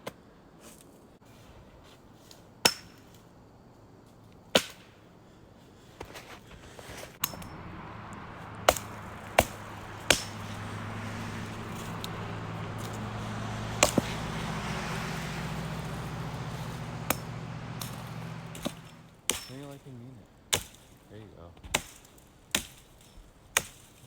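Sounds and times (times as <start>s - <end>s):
axe chopping branches: 2.3s - 3.2s, 4.5s - 5.0s, 6.0s - 24.0s
low engine-like hum: 7.2s - 19.2s.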